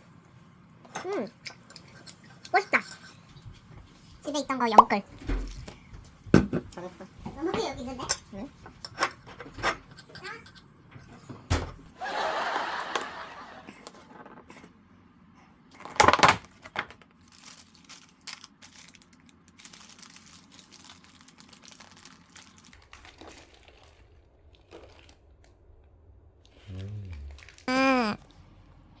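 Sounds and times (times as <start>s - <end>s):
crinkling and rustling: 0.9s - 11.9s, 15.7s - 26.7s, 27.3s - 27.7s.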